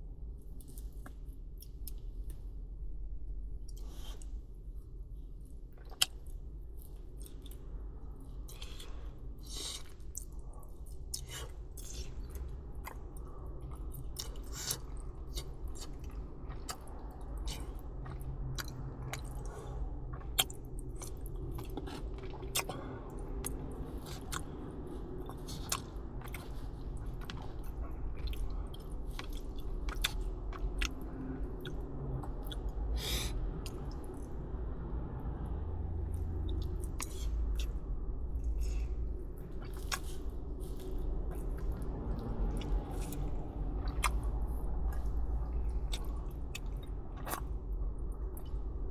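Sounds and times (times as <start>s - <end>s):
low background rumble: 0.0s - 48.9s
steady low hum: 0.0s - 48.9s
wet chewing mouth clicks: 29.1s - 31.0s.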